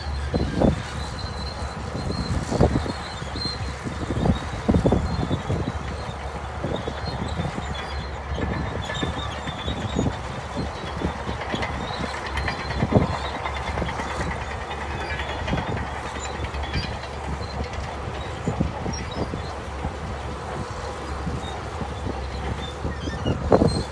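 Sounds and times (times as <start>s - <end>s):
bulldozer diesel engine running: 0.0s - 23.9s
metallic track clanks: 5.6s - 23.9s.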